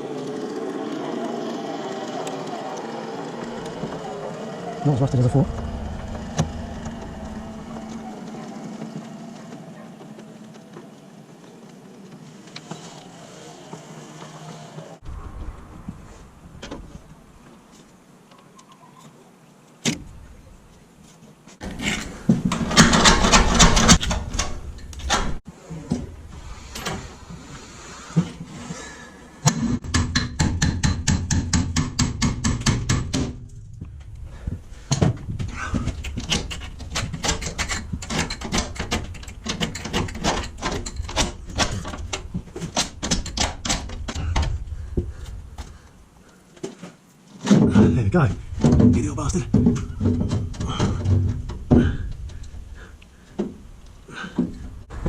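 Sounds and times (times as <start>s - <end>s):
rapid knocks or clicks: 29.5s - 45.8s.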